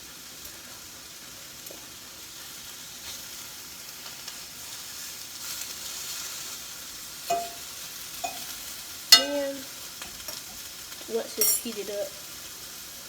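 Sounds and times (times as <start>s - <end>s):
food sizzling in a frying pan: 0.0s - 13.0s
sharp metallic clink: 7.3s - 8.5s, 9.2s - 9.5s
fork ticking in pan: 7.3s - 9.6s.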